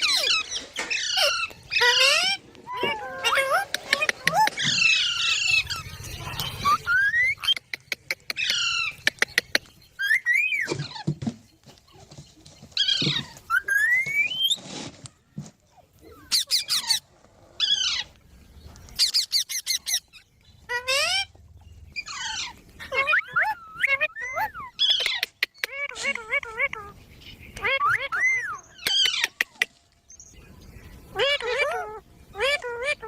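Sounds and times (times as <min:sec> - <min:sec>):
parrots calling: 0:00.0 - 0:11.1, 0:16.1 - 0:18.2, 0:18.9 - 0:29.8, 0:31.0 - 0:33.0.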